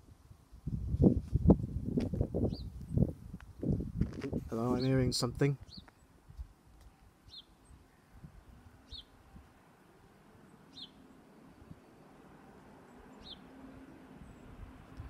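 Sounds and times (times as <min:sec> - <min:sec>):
bird chirping: 0:02.4 - 0:02.7, 0:04.7 - 0:06.1, 0:06.8 - 0:09.5, 0:10.4 - 0:14.6.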